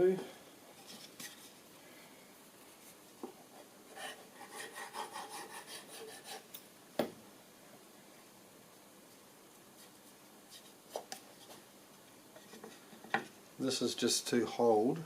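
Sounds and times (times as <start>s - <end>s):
rasping strokes on timber: 3.9s - 6.4s.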